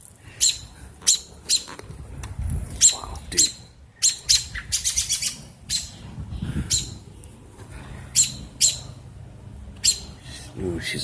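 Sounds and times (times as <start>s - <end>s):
robin alarm calls: 0.3s - 1.8s, 2.7s - 7.2s, 8.0s - 9.1s, 9.7s - 10.3s.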